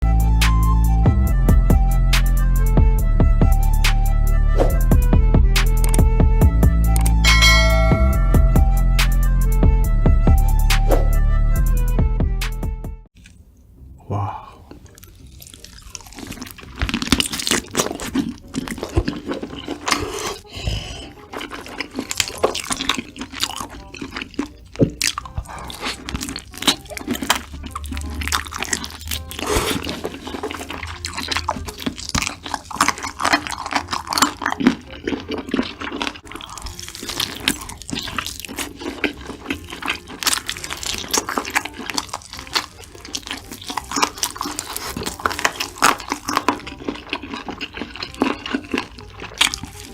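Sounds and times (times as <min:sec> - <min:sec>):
crunchy chewing: 0:13.1 - 0:49.9.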